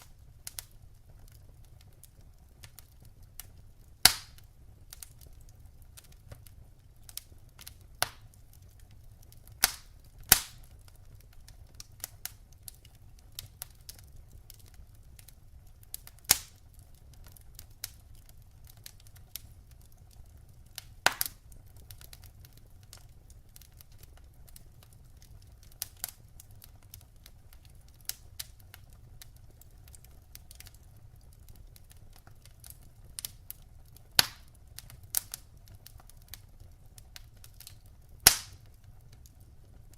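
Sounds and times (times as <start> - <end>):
low rumble of flame: 0.0 - 39.9
logs popping and snapping: 4.0 - 4.5, 9.6 - 10.6, 16.3 - 16.6, 21.0 - 21.4, 34.2 - 34.5, 37.6 - 38.8.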